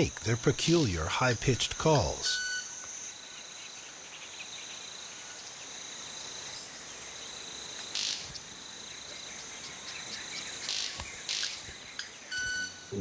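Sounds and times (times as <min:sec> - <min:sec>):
insects droning: 0:00.0 - 0:13.0
sharp high-pitched wing snap: 0:10.6 - 0:11.8.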